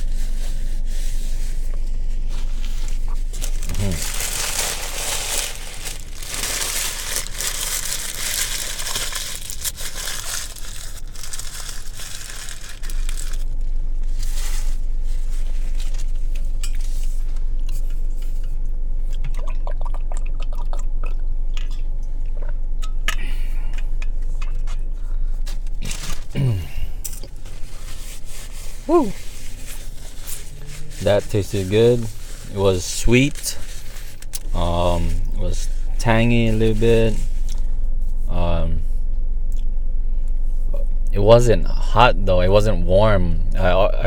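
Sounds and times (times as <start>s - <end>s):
crisp crunching of bread: 3.0s - 14.8s, 23.8s - 28.3s
soft chewing: 16.3s - 26.4s.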